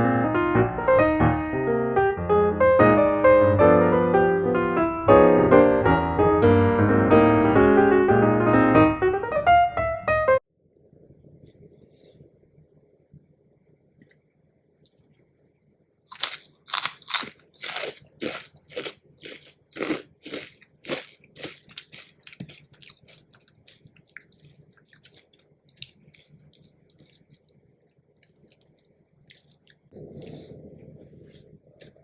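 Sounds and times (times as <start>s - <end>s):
crisp food crunching: 16.1s - 30.5s.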